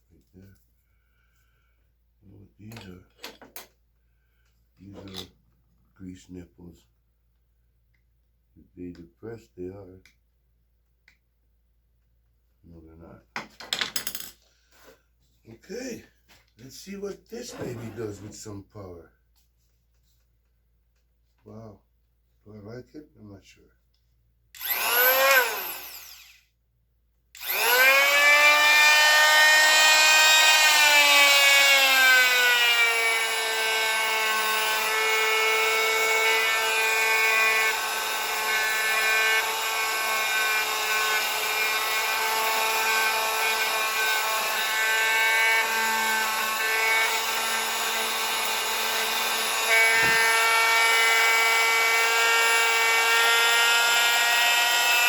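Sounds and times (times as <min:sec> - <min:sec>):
impact wrench whine: 0:24.6 - 0:26.5, 0:27.4 - 0:31.1, 0:32.0 - 0:55.0.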